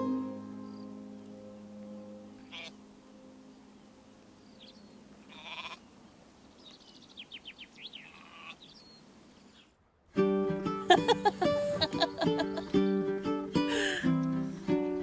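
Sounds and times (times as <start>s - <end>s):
birds chirping and trilling: 0.6s - 9.8s
sheep bleating: 2.4s - 2.8s, 5.2s - 5.8s, 8.0s - 8.7s.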